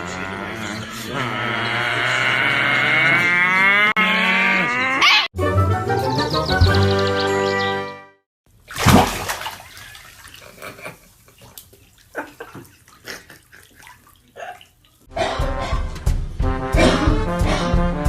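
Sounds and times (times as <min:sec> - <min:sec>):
music: 0:05.4 - 0:08.2, 0:15.1 - 0:18.0
water splashing in a bathtub: 0:08.5 - 0:15.1.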